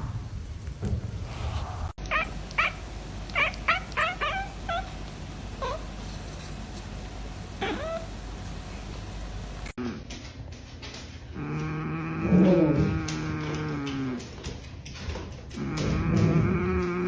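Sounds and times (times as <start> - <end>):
young animal crying: 2.0 - 6.0, 7.6 - 8.2.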